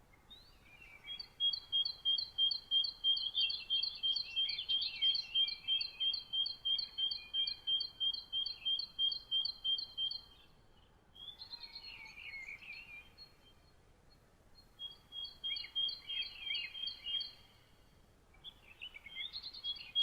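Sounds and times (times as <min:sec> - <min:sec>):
faint background hiss: 0:00.0 - 0:20.0
songbird two-tone chirp: 0:00.2 - 0:10.5, 0:11.2 - 0:20.0
bird twittering: 0:00.9 - 0:10.4, 0:14.7 - 0:17.7.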